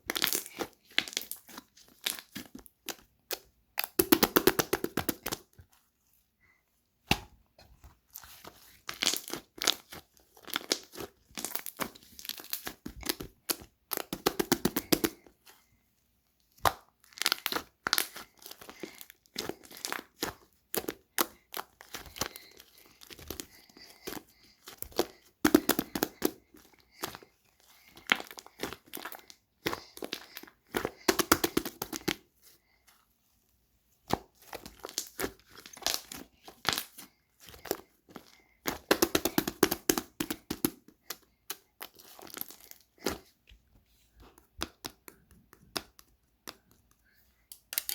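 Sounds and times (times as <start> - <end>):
slime squished by hand crackling: 0.0 - 5.6, 7.0 - 15.2, 16.5 - 32.2.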